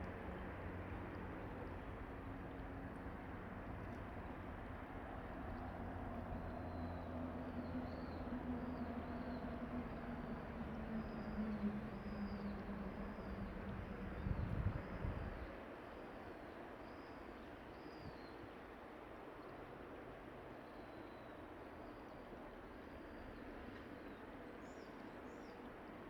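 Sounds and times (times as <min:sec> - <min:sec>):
distant vehicle engine hum: 0:00.0 - 0:15.5.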